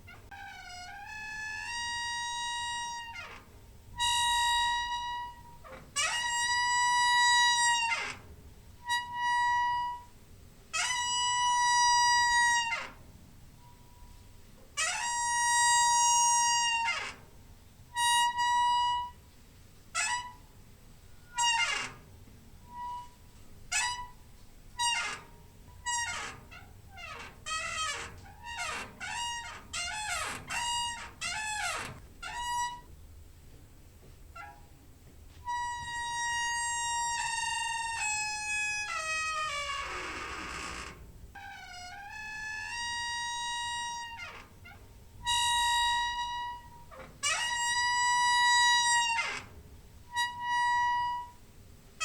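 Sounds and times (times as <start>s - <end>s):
squeaky door hinge creaking: 0.0s - 19.2s, 19.9s - 33.0s, 34.3s - 34.8s, 35.4s - 51.6s.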